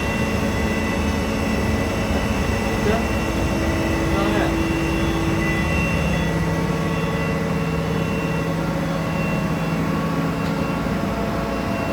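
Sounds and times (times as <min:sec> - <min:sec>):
machine tool humming: 0:00.0 - 0:11.9
faint high tones: 0:02.8 - 0:11.9.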